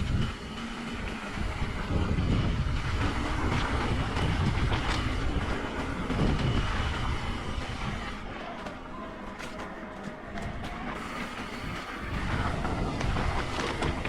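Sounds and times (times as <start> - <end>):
wind rushing over microphone: 0.0 - 8.5, 10.4 - 14.0
bike clattering over bumps: 0.0 - 14.0
tyre noise on dirt: 0.0 - 14.0.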